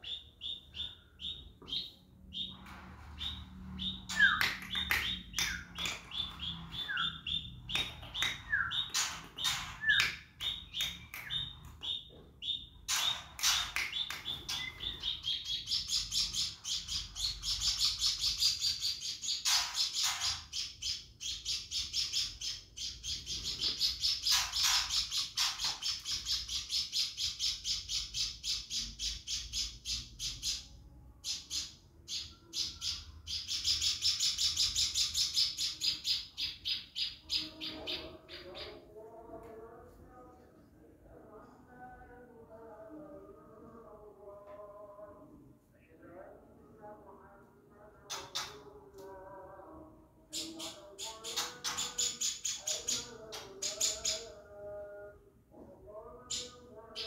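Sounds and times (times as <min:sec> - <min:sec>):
songbird chirping rapid high notes: 0:03.2 - 0:30.6
sharp bird calls: 0:03.2 - 0:38.8.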